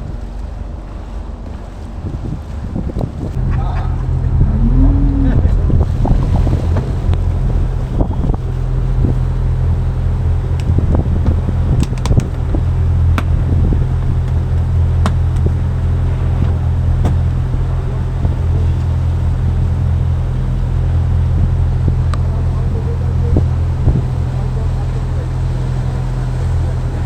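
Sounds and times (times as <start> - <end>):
boat engine droning: 0.0 - 27.0
faint clicks: 10.6 - 12.6.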